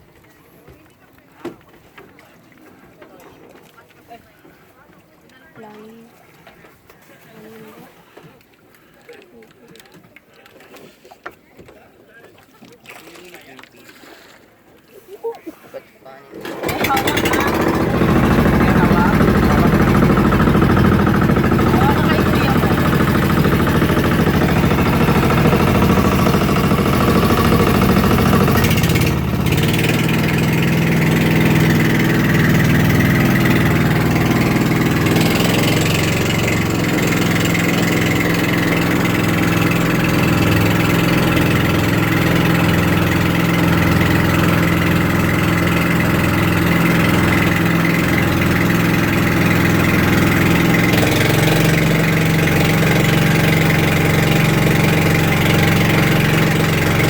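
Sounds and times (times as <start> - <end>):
boat engine running: 16.3 - 57.0.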